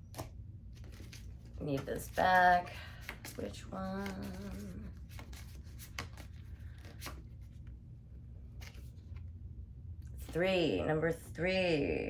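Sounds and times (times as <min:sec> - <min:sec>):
low steady hum: 0:00.0 - 0:12.0
paper packaging rustling: 0:00.7 - 0:07.6.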